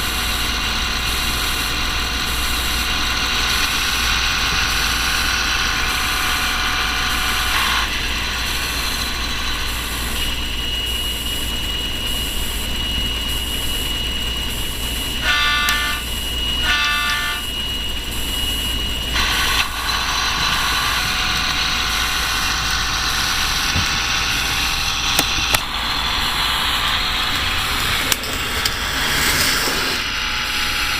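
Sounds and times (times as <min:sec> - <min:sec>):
diesel engine running: 0:00.0 - 0:30.9
short horn toots: 0:16.6 - 0:17.4.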